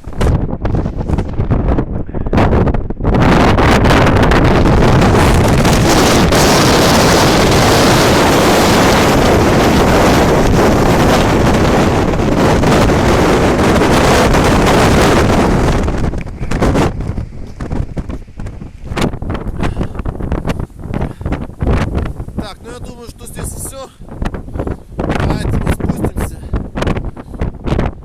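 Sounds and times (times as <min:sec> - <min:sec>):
storm wind buffeting microphone: 0:00.0 - 0:28.0.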